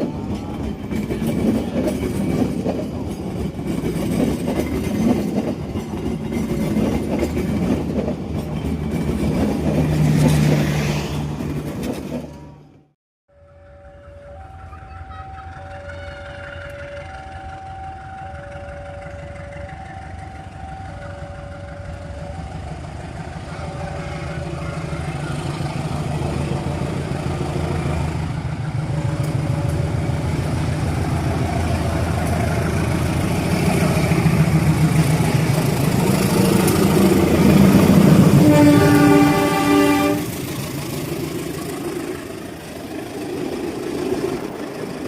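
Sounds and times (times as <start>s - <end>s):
diesel train engine approaching: 0.0s - 45.0s
locomotive horn blast: 37.7s - 40.4s.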